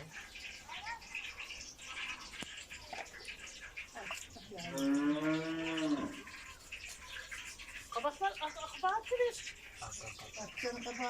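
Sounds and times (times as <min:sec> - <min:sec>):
cow mooing: 0:04.7 - 0:06.2.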